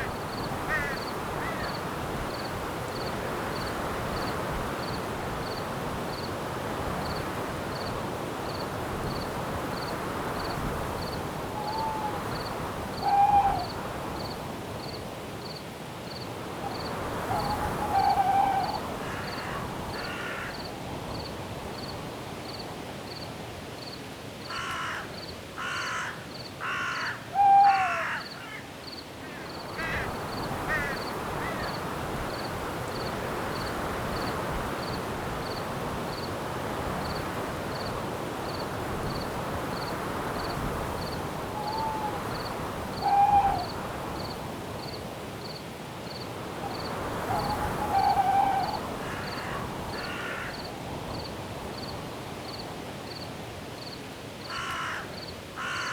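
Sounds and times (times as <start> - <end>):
cricket chirping: 0.0 - 6.4, 27.6 - 36.3, 36.9 - 55.9
wind through trees: 0.0 - 55.9
owl hooting: 11.6 - 12.3, 13.0 - 13.8, 17.2 - 19.6, 26.8 - 28.2, 41.6 - 43.8, 46.6 - 50.5.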